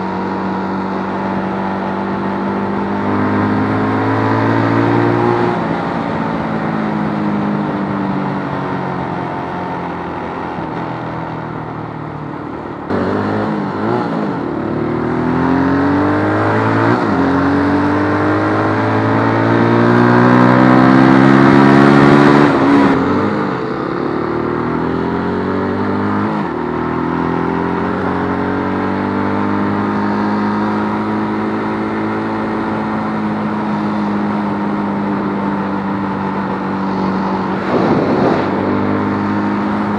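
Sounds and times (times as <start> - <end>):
motorcycle engine running: 29.8 - 39.9.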